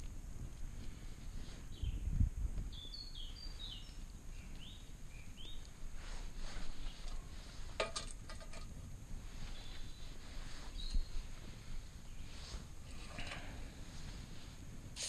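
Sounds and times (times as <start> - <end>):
outdoor background noise: 0.0 - 15.0
songbird whistling: 2.7 - 5.6.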